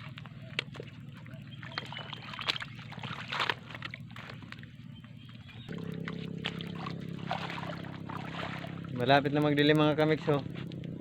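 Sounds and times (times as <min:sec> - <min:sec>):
low steady hum: 0:00.0 - 0:11.0
shallow seawater sloshing: 0:00.7 - 0:04.9, 0:05.7 - 0:09.5.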